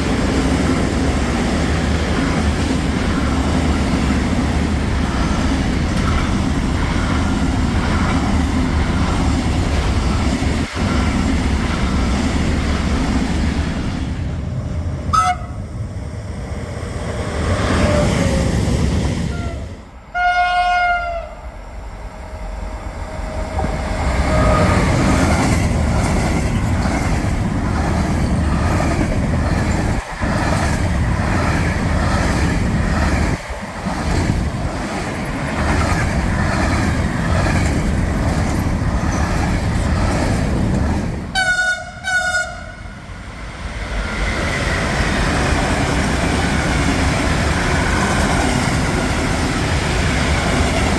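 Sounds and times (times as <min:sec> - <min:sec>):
freight train rumbling past: 0:00.0 - 0:50.9
train horn blast: 0:15.1 - 0:15.6, 0:19.3 - 0:21.4, 0:41.3 - 0:42.9.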